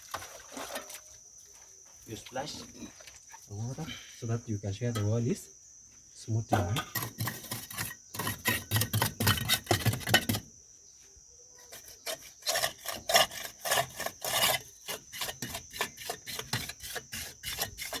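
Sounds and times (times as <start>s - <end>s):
plastering float scraping plaster: 6.8s - 10.5s, 11.7s - 18.0s.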